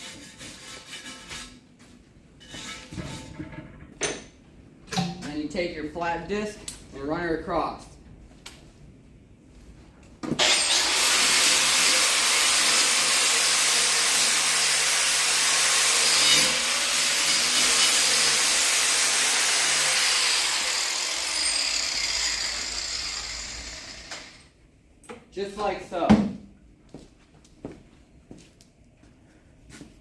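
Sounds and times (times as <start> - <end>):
angle grinder grinding steel: 10.4 - 24.5.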